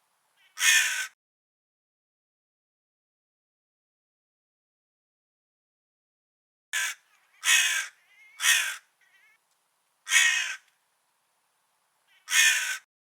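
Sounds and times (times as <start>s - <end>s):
crow cawing: 0.4s - 1.2s, 6.8s - 9.4s, 10.0s - 10.7s, 12.1s - 12.9s.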